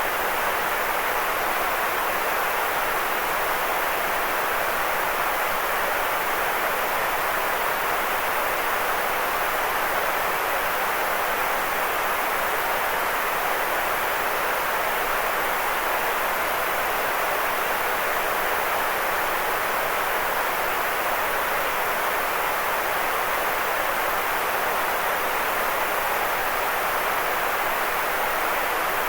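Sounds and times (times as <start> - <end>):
white noise hiss: 0.0 - 29.0.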